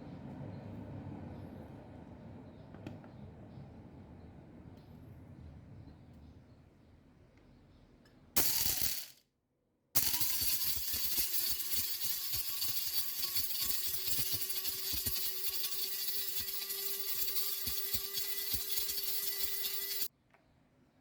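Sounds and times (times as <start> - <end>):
coffee grinder grinding beans: 8.4 - 9.2, 10.0 - 20.1.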